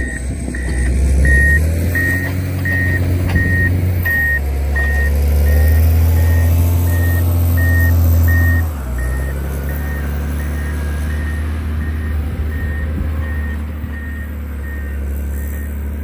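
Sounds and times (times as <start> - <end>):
reversing alarm beeping: 0.0 - 15.8
diesel engine running hard: 0.0 - 16.0.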